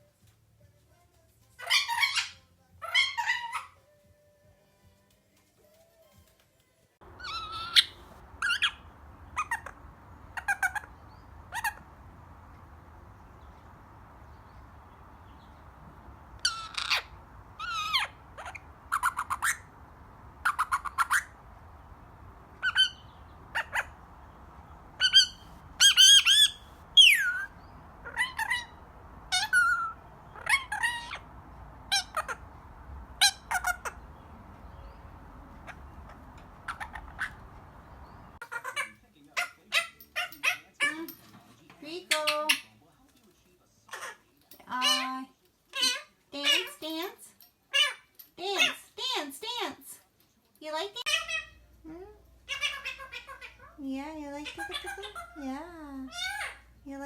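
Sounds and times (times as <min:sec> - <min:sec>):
parakeet squawks and chirps: 0:01.6 - 0:03.7, 0:07.1 - 0:41.0, 0:51.0 - 0:51.6, 0:52.4 - 0:53.8, 0:54.4 - 0:55.4, 0:56.1 - 0:56.8.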